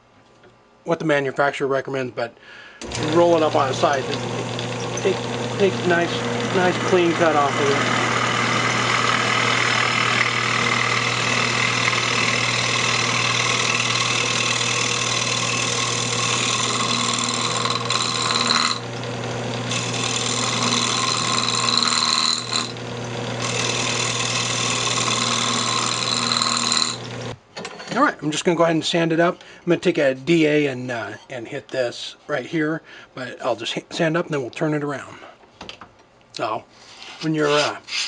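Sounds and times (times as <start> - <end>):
lathe tool cutting hiss: 2.8 - 18.8, 19.7 - 22.8, 23.4 - 27.0
lathe motor hum: 2.8 - 27.3.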